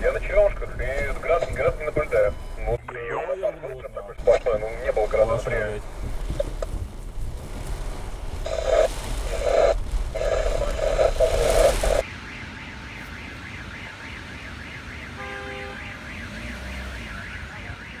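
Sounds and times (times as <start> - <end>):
warbling electronic siren: 12.0 - 18.0.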